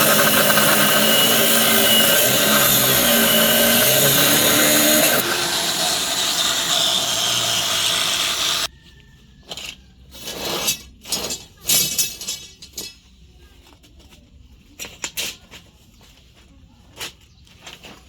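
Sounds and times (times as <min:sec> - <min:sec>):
power tool on metal: 0:00.0 - 0:08.7.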